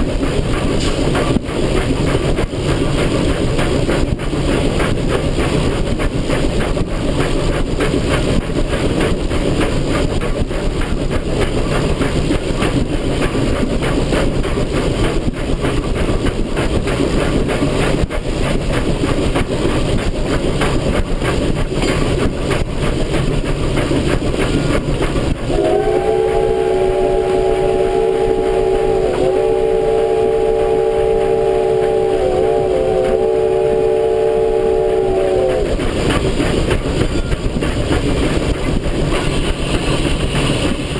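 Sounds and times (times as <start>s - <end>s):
steam locomotive clattering: 0.0s - 40.9s
chime steam whistle: 25.5s - 35.7s.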